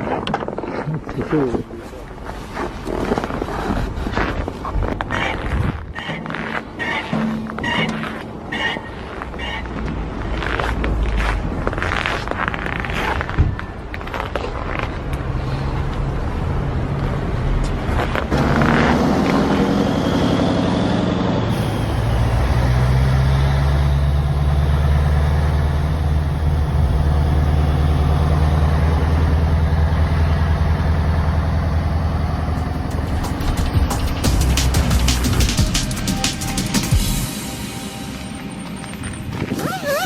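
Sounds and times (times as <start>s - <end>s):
truck diesel engine running: 18.3s - 39.6s.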